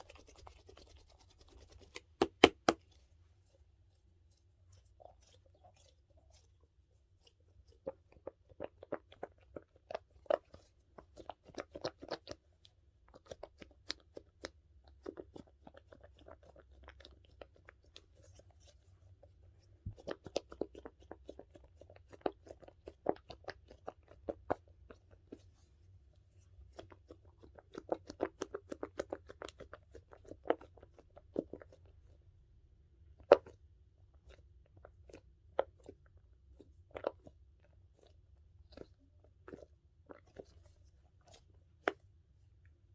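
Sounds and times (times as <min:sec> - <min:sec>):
squishy toy crunchy squishing: 0:00.0 - 0:03.2, 0:26.5 - 0:32.2, 0:33.0 - 0:42.6.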